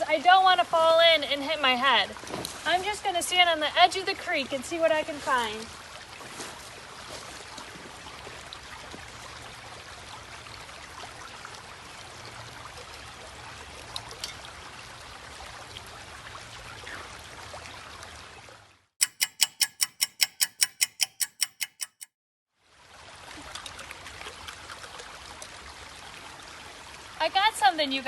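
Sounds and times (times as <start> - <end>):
creek water trickling over rocks: 0.0 - 18.9, 22.6 - 28.0
faint clicks: 19.0 - 22.1.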